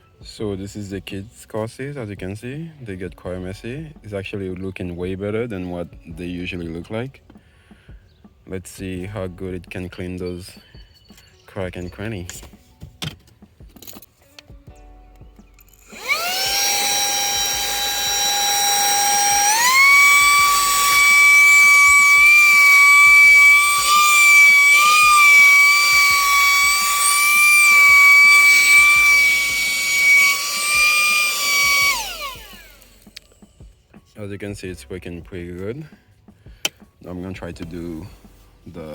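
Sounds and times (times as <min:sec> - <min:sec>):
handheld vacuum whining: 0:15.8 - 0:33.8.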